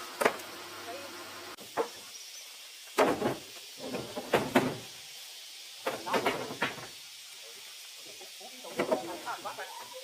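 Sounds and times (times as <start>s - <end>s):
sharp knocks and clatters: 3.0s - 4.8s, 5.8s - 6.9s.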